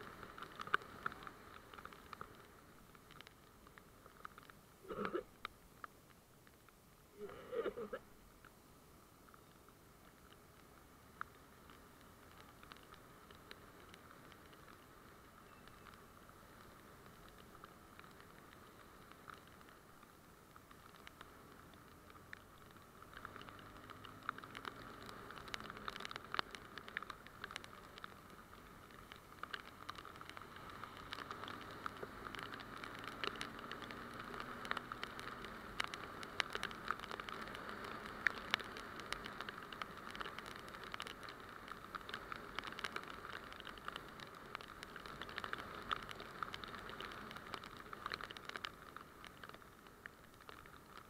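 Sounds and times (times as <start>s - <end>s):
rain drops ticking on camera: 0.0s - 51.0s.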